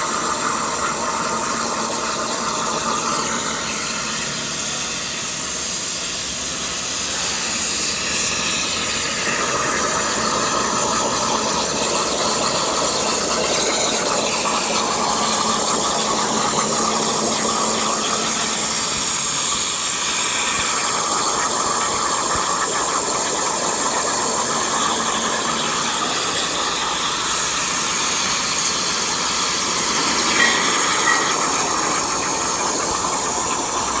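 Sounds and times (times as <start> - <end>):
plasma torch hissing: 24.8 - 33.9.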